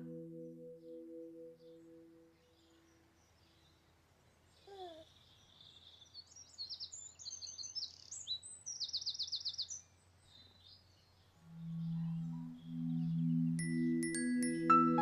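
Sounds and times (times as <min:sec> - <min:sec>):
songbirds chirping: 0:00.0 - 0:15.0
bird trill: 0:04.6 - 0:15.0.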